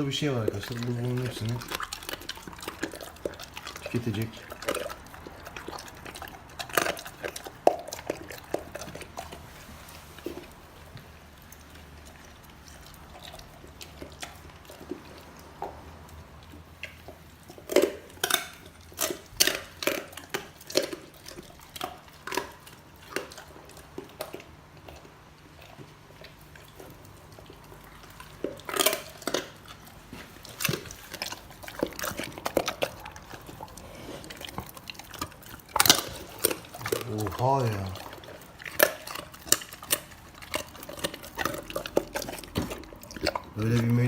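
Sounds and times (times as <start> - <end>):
dog chewing with wet smacking: 0.0 - 44.0
bones cracking: 27.4 - 44.0.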